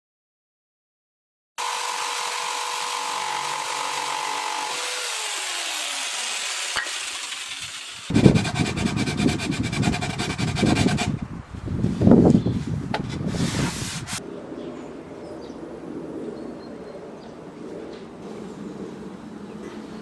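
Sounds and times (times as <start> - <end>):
electric jigsaw cutting wood: 1.6 - 11.1.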